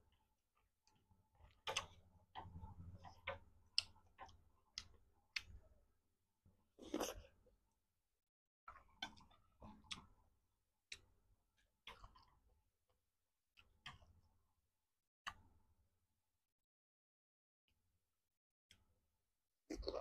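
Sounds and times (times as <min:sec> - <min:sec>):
person chewing noodles: 0:06.8 - 0:07.3.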